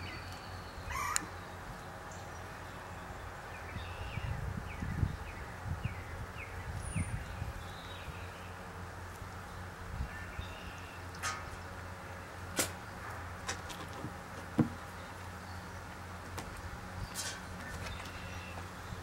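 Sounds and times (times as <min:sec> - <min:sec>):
bird chirping: 0:00.0 - 0:08.6, 0:17.0 - 0:19.0.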